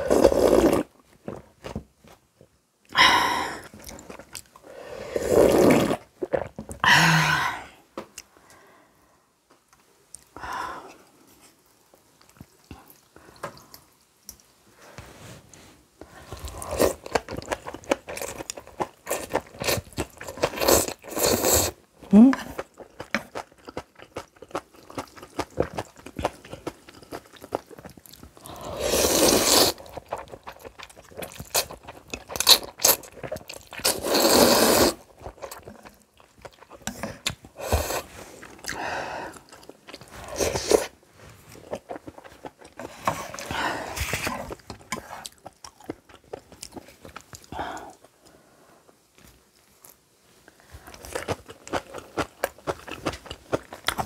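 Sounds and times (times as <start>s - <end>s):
slurping noodles: 0.0s - 0.9s, 4.8s - 6.5s, 20.5s - 21.8s, 28.4s - 30.3s, 31.4s - 35.1s.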